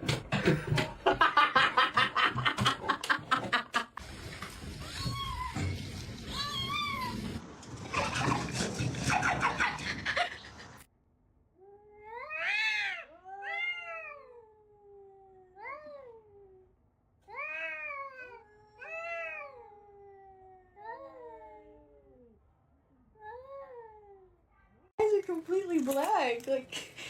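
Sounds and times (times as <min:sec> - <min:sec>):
cat meowing: 0:12.1 - 0:14.4
noisy scuffling: 0:25.0 - 0:27.0.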